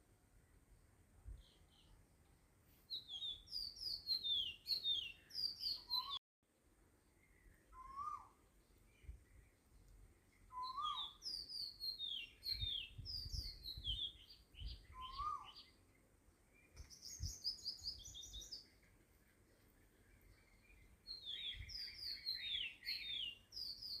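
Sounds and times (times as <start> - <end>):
birds chirping: 2.9 - 6.2, 7.0 - 24.0
low rising and falling bird call: 2.9 - 6.2, 7.2 - 9.6, 10.5 - 15.8, 19.9 - 24.0.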